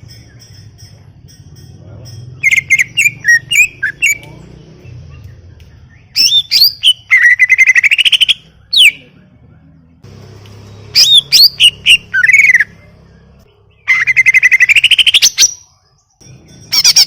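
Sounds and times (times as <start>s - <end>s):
bird whistling and trilling: 2.4s - 4.3s, 4.9s - 9.1s, 10.9s - 12.8s, 13.8s - 17.0s.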